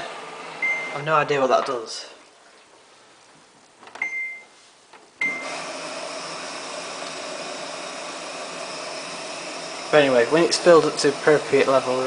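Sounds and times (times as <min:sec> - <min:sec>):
control panel beeps: 0:00.6 - 0:01.0, 0:04.0 - 0:04.5, 0:05.2 - 0:05.5.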